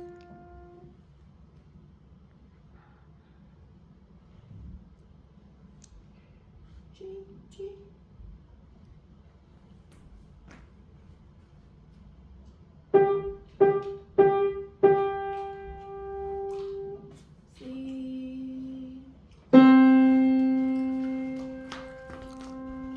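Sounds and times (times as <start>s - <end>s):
piano melody: 13.0s - 17.0s, 19.5s - 22.9s.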